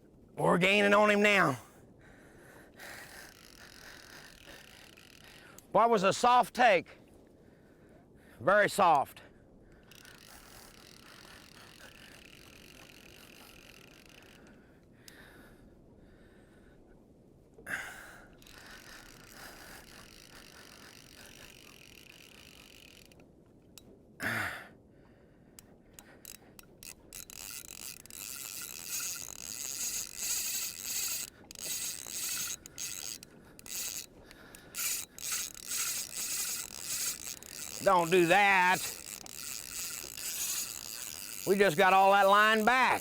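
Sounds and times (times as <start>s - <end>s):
fly reel ratchet clicking: 3.0s - 5.7s, 9.8s - 14.6s, 18.3s - 23.2s, 25.6s - 43.0s.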